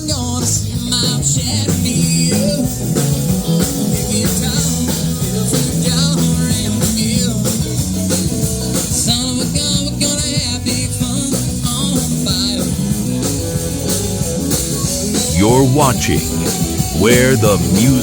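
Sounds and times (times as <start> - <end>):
bass guitar: 0.0 - 18.0
drum kit: 0.0 - 18.0
lead guitar lines: 15.2 - 18.0.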